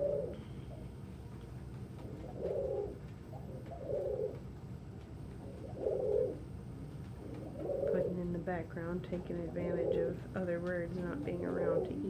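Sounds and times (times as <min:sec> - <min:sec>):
pigeons cooing: 0:00.0 - 0:00.9, 0:02.0 - 0:04.6, 0:05.4 - 0:06.6, 0:07.2 - 0:12.0.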